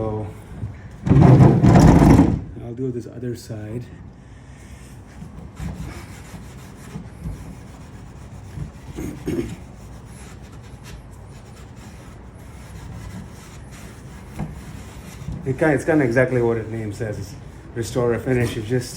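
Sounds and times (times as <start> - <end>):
steel wool scrubbing wood: 5.0 - 18.8.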